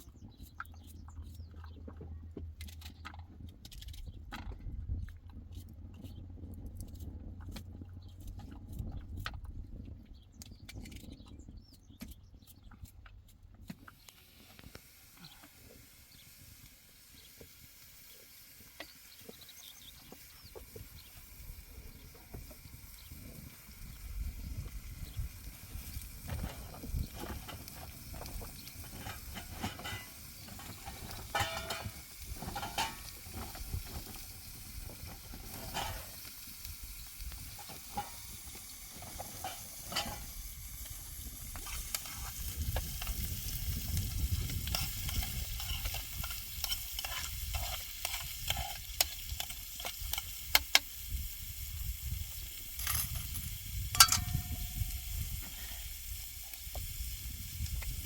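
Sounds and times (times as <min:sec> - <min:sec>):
food sizzling: 0:14.0 - 0:58.0.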